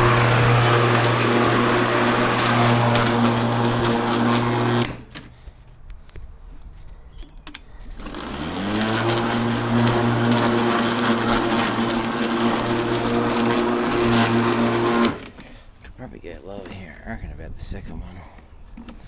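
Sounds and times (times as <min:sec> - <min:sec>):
electric lawn mower running: 0:00.0 - 0:05.4, 0:07.9 - 0:15.9
clicks: 0:07.2 - 0:08.2.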